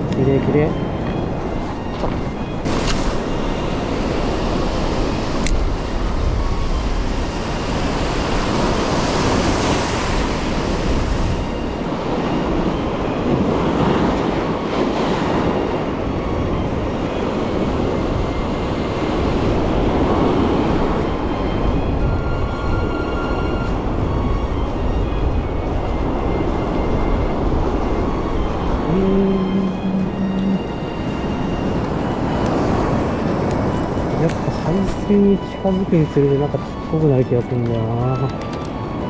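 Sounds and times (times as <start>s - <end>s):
wind rumbling on microphone: 0.0s - 39.0s
surf breaking on beach: 1.1s - 15.8s.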